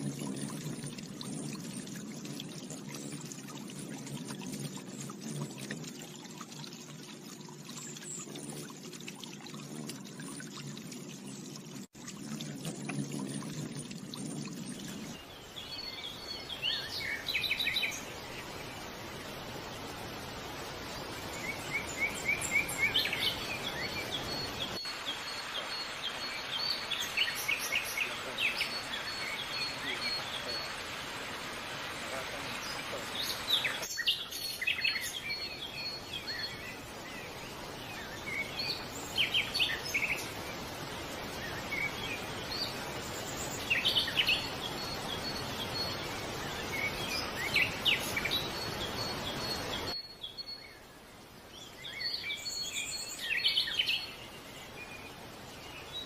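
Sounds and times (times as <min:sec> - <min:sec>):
water pouring and splashing: 0:00.0 - 0:50.0
steady background hiss: 0:12.4 - 0:56.0.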